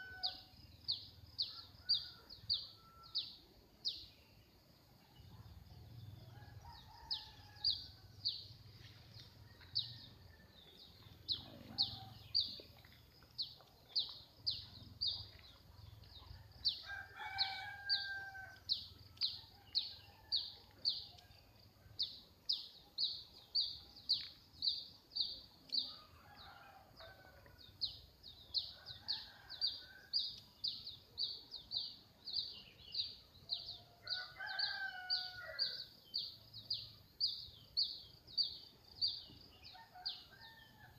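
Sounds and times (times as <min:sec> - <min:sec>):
rooster crowing: 0:16.8 - 0:18.6.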